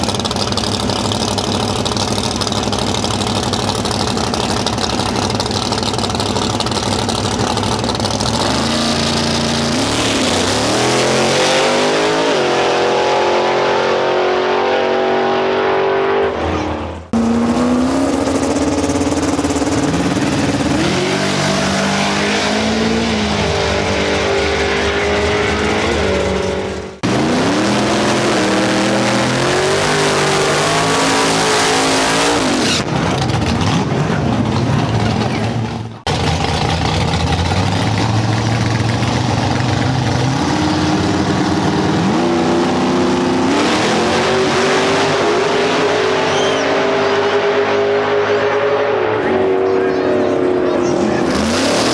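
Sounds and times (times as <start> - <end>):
racing cars accelerating: 8.4 - 35.4, 37.9 - 51.9.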